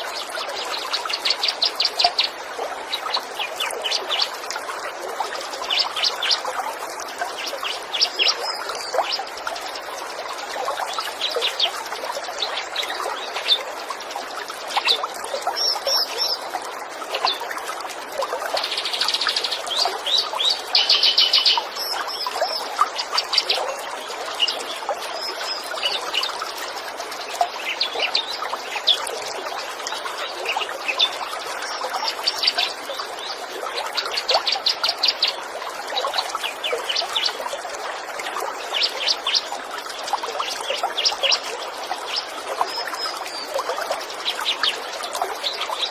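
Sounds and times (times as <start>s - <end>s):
water trickling: 0.0s - 45.9s
songbirds chirping and trilling: 18.4s - 37.6s.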